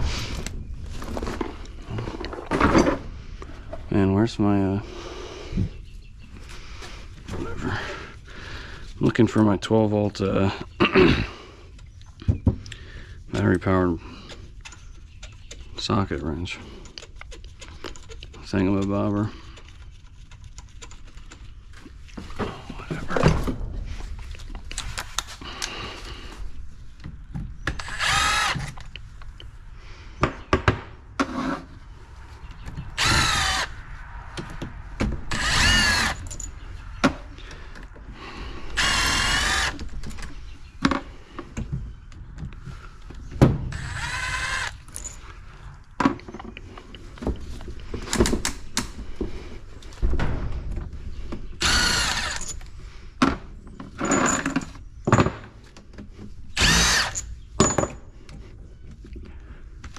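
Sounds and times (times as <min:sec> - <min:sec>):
tools and parts clattering: 0:00.0 - 0:04.0, 0:34.4 - 0:38.0, 0:44.8 - 0:58.5
cordless ratchet motor whirring: 0:27.7 - 0:28.9, 0:33.0 - 0:33.8, 0:35.3 - 0:36.4, 0:38.8 - 0:39.8, 0:43.7 - 0:45.1, 0:51.6 - 0:52.6, 0:56.6 - 0:57.3.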